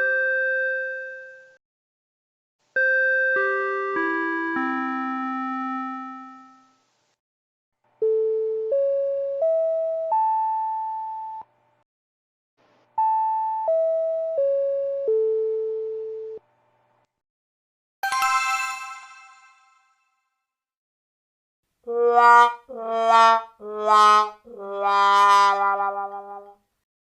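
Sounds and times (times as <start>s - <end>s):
four-note chime: 18.0s - 20.0s
bright ringing sound effect: 18.0s - 20.1s.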